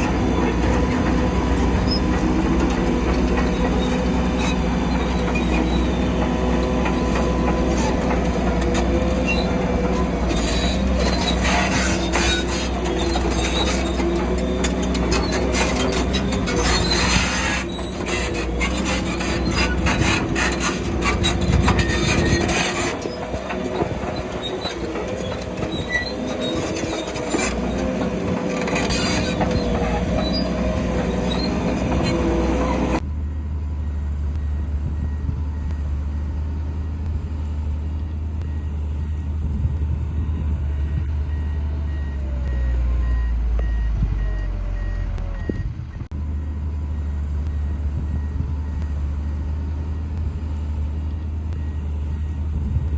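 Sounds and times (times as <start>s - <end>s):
diesel engine under load: 0.0s - 52.9s
machinery clanking and scraping: 0.0s - 52.9s
faint repeated beep: 40.2s - 45.7s.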